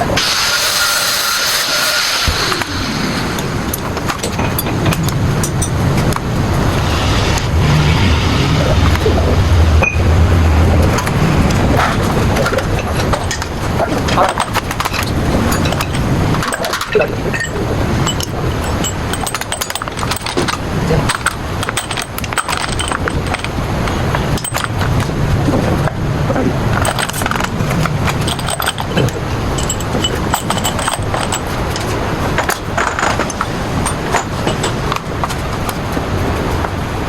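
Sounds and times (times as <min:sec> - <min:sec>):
low rumble: 0:02.3 - 0:14.2
sharp metallic clinks and knocks: 0:03.7 - 0:08.2, 0:10.9 - 0:25.1, 0:26.7 - 0:35.5.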